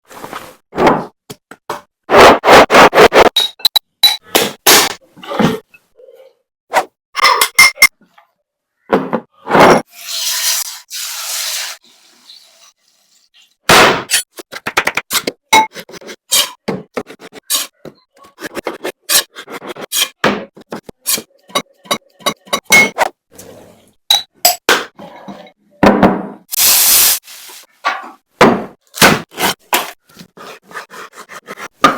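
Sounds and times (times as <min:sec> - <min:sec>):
utensils knocking and scraping: 0:14.1 - 0:23.1.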